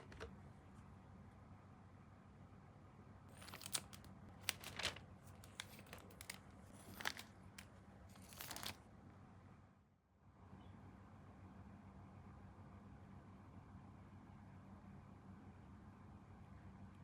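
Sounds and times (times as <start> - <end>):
plastic packaging crinkling: 3.4 - 8.8.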